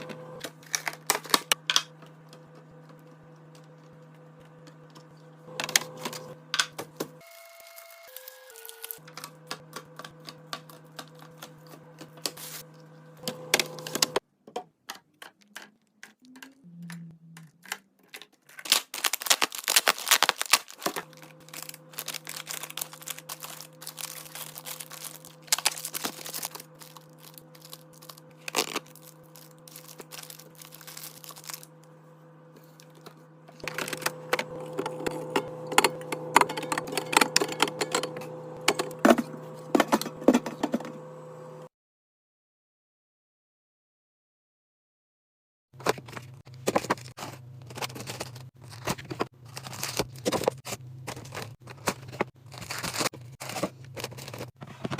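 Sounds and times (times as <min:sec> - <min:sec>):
low hum: 0:20.8 - 0:41.7.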